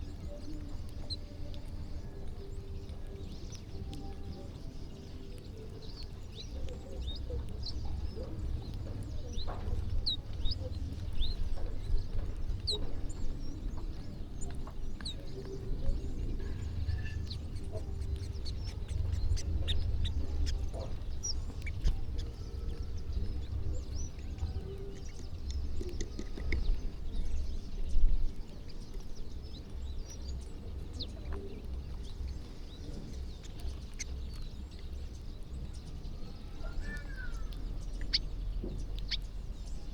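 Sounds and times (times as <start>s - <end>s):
birds chirping and calling: 0.0s - 39.9s
low rumble: 6.8s - 25.8s.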